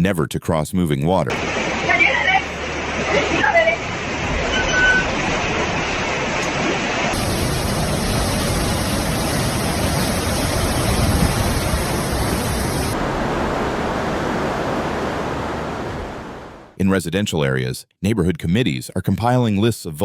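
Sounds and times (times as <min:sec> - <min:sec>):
loud rushing noise: 0:02.6 - 0:16.8.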